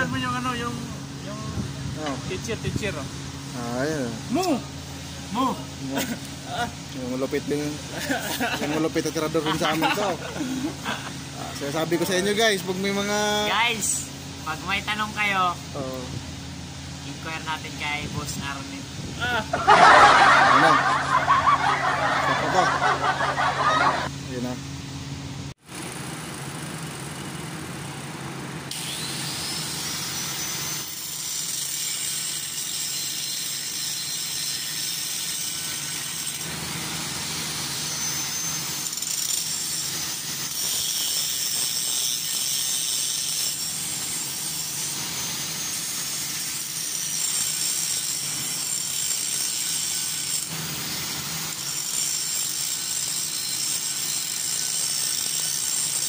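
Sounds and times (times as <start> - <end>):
high metalworking hiss: 39.4 - 56.0.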